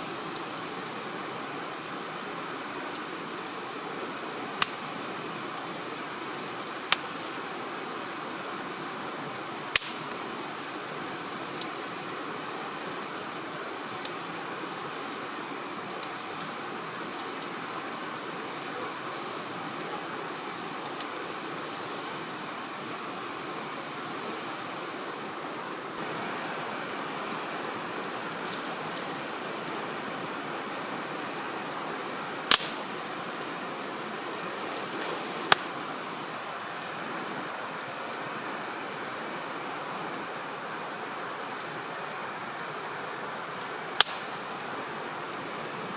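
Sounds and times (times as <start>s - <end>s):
campfire crackling: 0.0s - 45.9s
steady rushing hiss: 0.0s - 45.9s
sharp loud pops: 32.5s - 32.8s, 44.0s - 44.3s.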